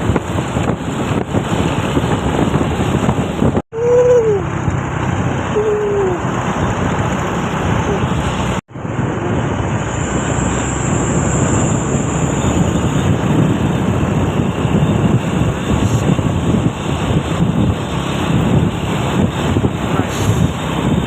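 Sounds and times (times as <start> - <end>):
heavy vehicles passing: 0.0 - 21.0
wind buffeting microphone: 0.0 - 21.0.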